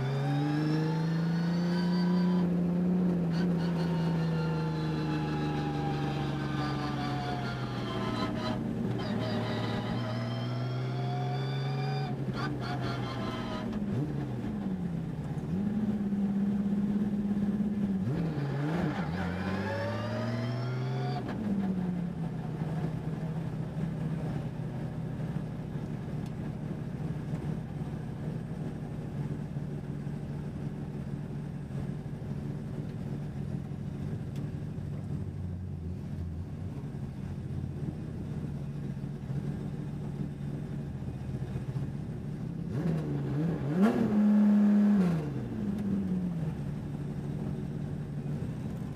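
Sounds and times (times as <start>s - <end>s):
race car engine revving: 0.0s - 14.4s, 18.0s - 21.4s, 42.7s - 46.2s.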